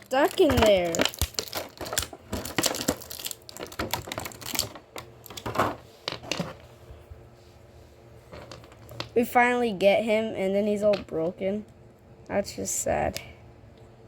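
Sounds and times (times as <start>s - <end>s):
hard plastic packaging clicking: 0.0s - 6.4s.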